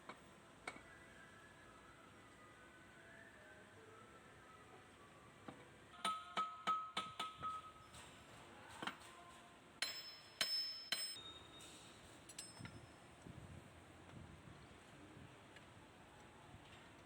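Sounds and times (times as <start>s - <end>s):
metal striking metal: 9.8s - 12.8s.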